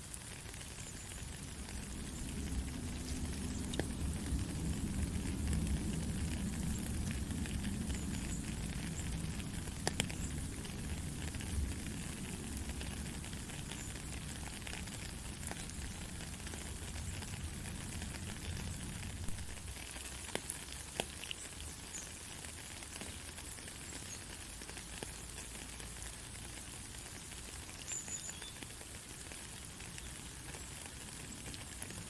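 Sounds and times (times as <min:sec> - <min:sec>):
heavy rain falling: 0:00.0 - 0:32.0
low rumble: 0:01.4 - 0:13.7.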